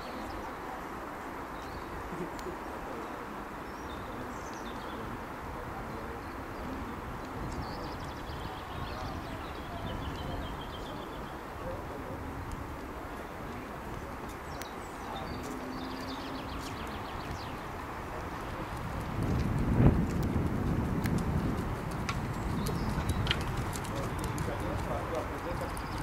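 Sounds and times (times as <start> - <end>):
low outdoor rumble: 0.0 - 26.0
birds trilling: 22.3 - 26.0.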